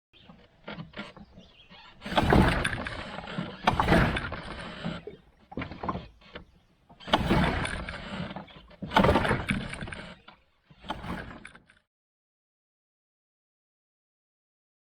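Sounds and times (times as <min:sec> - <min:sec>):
paddle splashing through water: 0:00.2 - 0:11.5.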